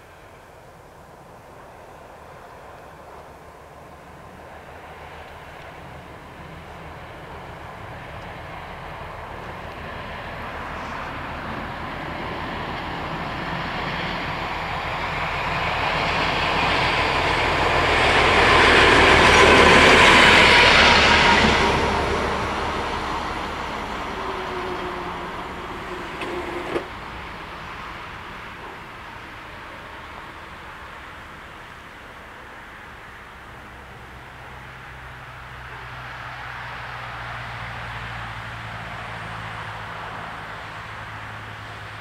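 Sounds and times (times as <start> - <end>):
train passing: 0.0 - 42.0
crossing barrier motors whining: 22.6 - 31.8.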